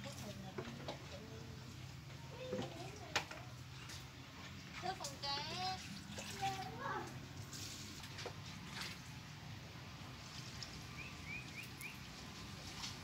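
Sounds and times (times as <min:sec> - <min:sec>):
small bird chirping: 0:10.8 - 0:12.1.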